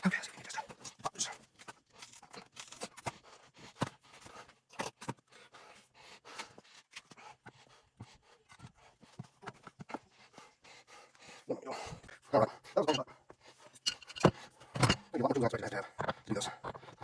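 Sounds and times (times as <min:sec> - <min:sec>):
tools clicking and knocking on metal: 0:13.7 - 0:15.2.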